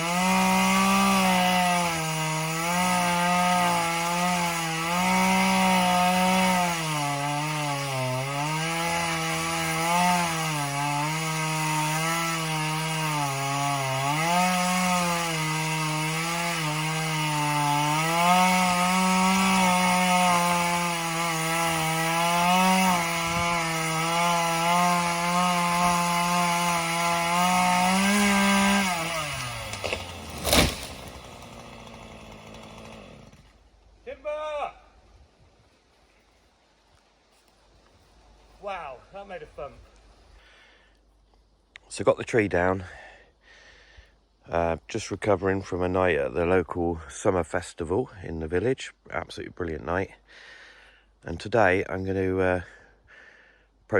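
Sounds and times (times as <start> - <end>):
chainsaw cutting wood: 0.0 - 33.7.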